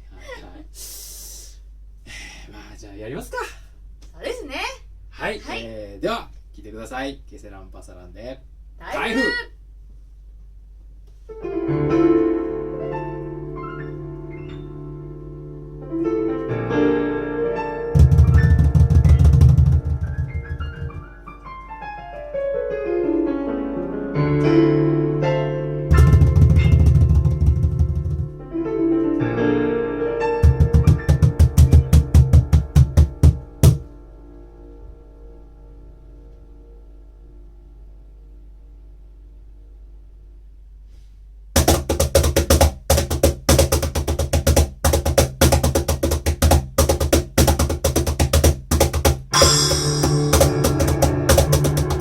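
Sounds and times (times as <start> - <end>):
electric piano: 11.3 - 38.4, 49.3 - 52.0
fast drum hits: 18.0 - 21.1, 25.9 - 28.4, 30.4 - 33.9, 41.6 - 52.0
low bass line: 25.9 - 28.6, 49.3 - 52.0
instrumental band music: 30.2 - 33.9, 41.6 - 52.0
band playing a song: 49.4 - 52.0.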